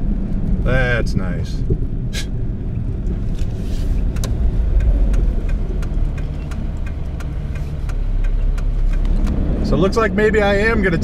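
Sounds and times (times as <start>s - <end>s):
car engine and road rumble: 0.0s - 11.0s
light ticks: 3.0s - 9.4s.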